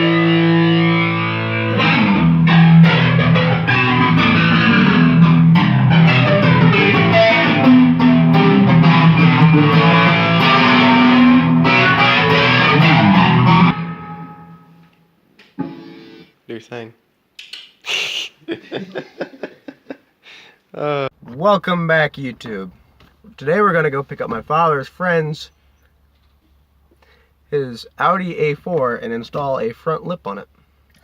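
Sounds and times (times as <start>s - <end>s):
electric guitar and bass music: 0.0s - 16.3s.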